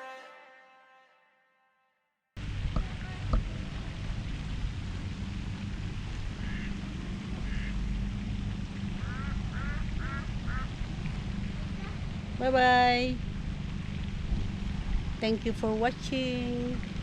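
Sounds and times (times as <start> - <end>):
wind rumble on microphone: 2.4 - 17.0
ducks quacking: 6.4 - 7.8, 9.0 - 10.7.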